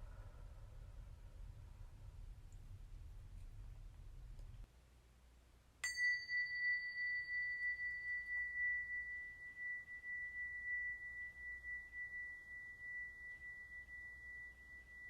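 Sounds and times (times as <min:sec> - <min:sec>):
metal tone ringing: 0:05.8 - 0:15.0.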